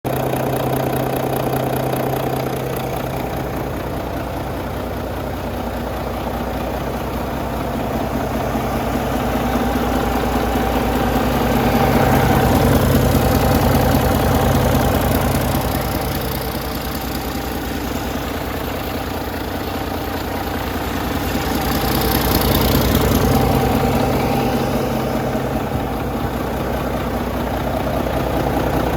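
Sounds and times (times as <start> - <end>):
diesel truck engine idling: 0.0 - 28.9.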